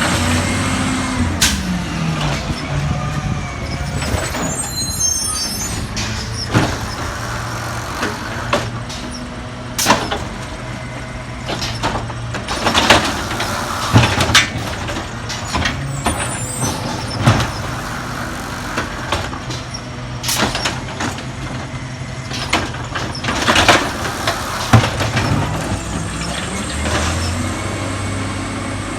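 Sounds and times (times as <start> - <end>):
garbage truck engine running: 0.0 - 28.9
bangs and clanks: 5.6 - 27.3.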